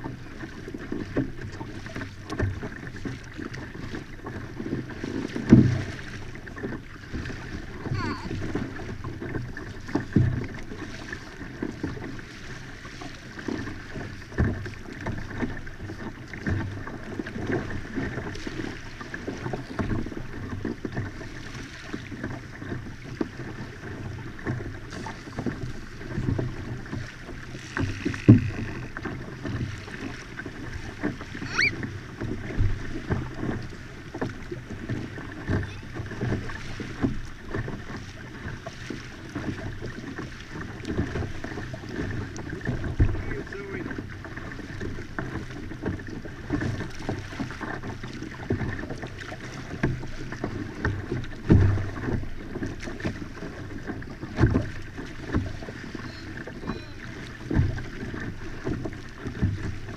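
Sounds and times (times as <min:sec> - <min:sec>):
knocks and taps on hull: 0:00.0 - 0:59.9
water wash and hull noise: 0:00.0 - 0:59.9
rising squeak: 0:31.4 - 0:31.8.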